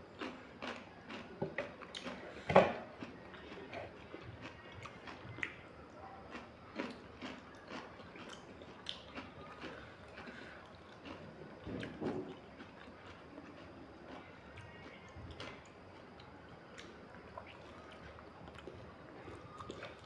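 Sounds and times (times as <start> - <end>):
chewing with wet mouth smacks: 0.2 - 5.6, 6.3 - 20.0.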